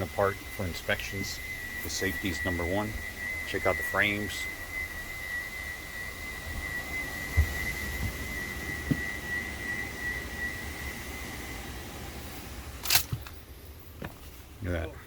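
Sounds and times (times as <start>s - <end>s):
high-pitched whistle-like tone: 0.0s - 12.5s
low hum: 0.0s - 15.0s
dull thumps: 6.5s - 9.1s.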